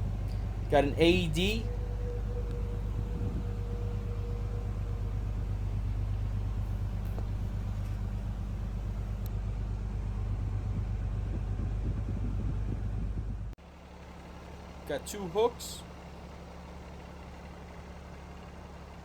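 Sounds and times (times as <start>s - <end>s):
steady whine: 0.0s - 9.5s
diesel engine idling: 0.0s - 19.0s.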